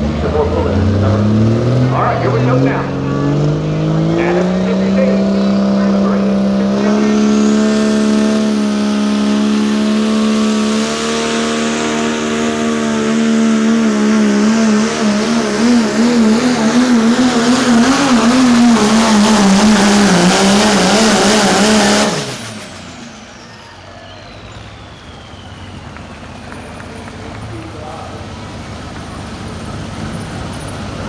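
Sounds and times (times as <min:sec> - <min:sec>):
diesel truck engine at high revs: 0:00.0 - 0:31.0
turbocharger whistle: 0:00.2 - 0:28.2.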